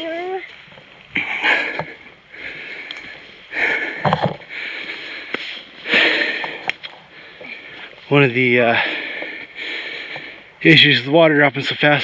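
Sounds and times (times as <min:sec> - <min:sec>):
man breathing heavily: 0:01.1 - 0:10.6.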